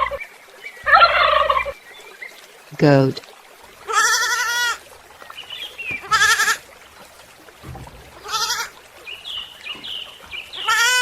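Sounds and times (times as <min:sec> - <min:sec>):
goat bleating: 0:03.9 - 0:04.8, 0:05.9 - 0:06.6, 0:08.2 - 0:08.8, 0:10.6 - 0:11.0.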